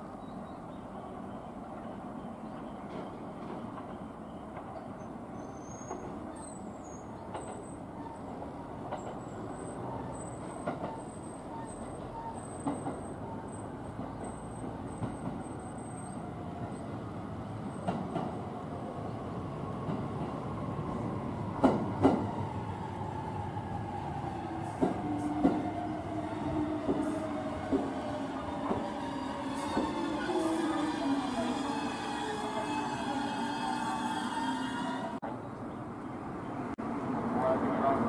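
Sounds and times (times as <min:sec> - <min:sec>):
falling train whine: 0:19.0 - 0:35.2
electric train running and slowing: 0:21.5 - 0:35.2.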